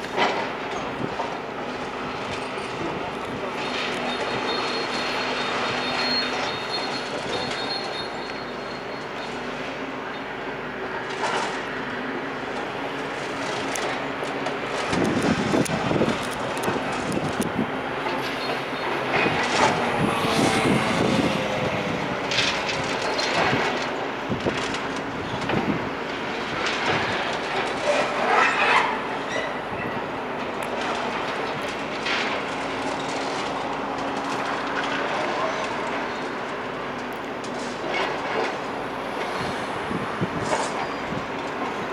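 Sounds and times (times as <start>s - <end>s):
machinery engine hum: 0.0s - 41.9s
metal screeches: 3.5s - 9.3s, 17.9s - 23.9s, 27.8s - 30.0s.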